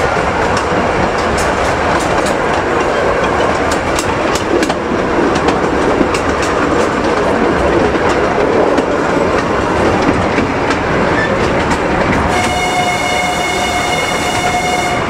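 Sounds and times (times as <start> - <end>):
train wheels clickety-clack: 0.0 - 15.0
train horn: 12.3 - 15.0.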